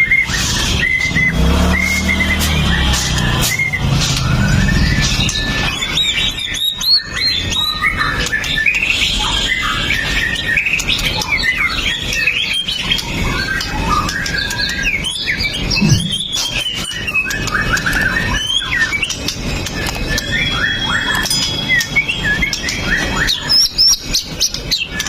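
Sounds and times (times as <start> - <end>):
songbird singing varied song: 0.0 - 25.0.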